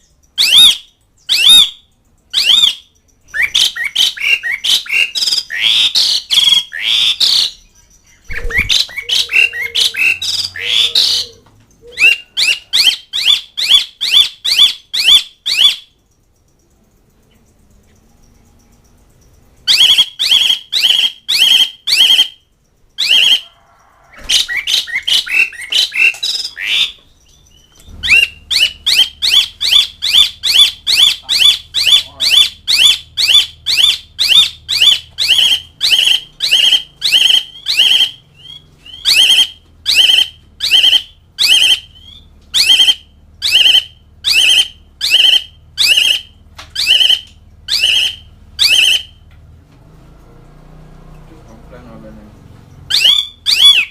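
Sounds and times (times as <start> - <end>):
bird chattering: 0.0 - 49.2, 51.9 - 53.9
starling harsh squawking calls: 2.4 - 7.6, 8.3 - 15.9, 19.7 - 22.4, 23.0 - 49.2, 52.8 - 53.9.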